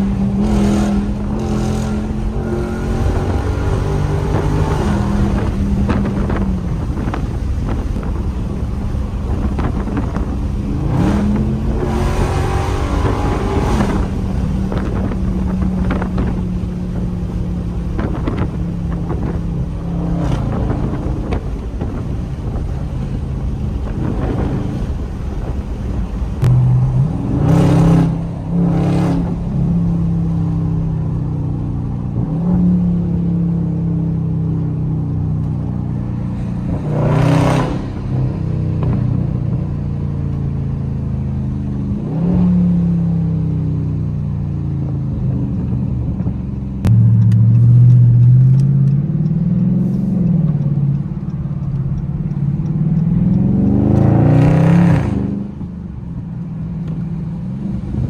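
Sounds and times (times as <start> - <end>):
loud revving blasts: 0.0 - 30.4, 36.2 - 39.4, 52.7 - 55.7
car engine accelerating: 0.0 - 58.0.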